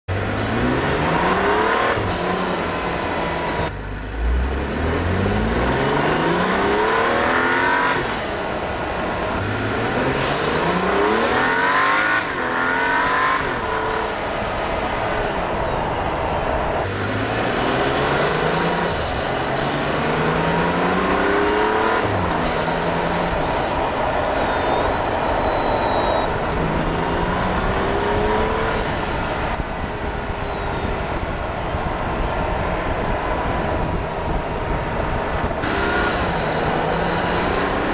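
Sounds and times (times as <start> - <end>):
car engine accelerating through gears: 0.1 - 37.9
turbo whistle: 22.4 - 27.6.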